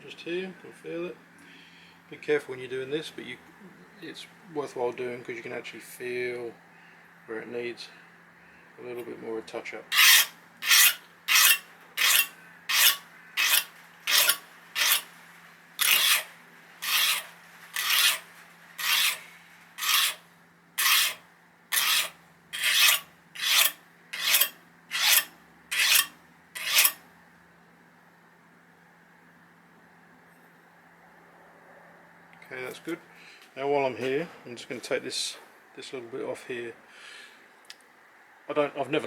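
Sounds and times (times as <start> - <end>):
hand file rasping on steel: 9.9 - 15.1, 15.8 - 20.2, 20.8 - 27.0.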